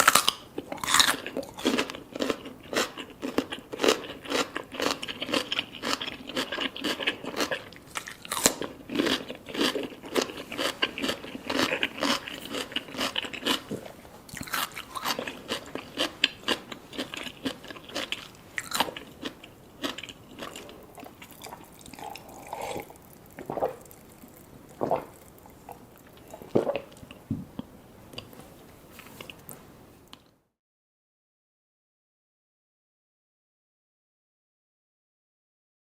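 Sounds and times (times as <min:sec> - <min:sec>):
wet chewing and crunching: 0:00.0 - 0:27.2.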